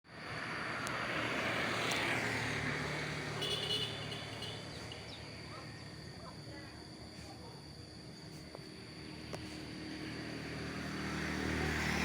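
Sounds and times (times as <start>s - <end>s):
motor vehicle passing by: 0.1s - 5.5s, 9.0s - 12.0s.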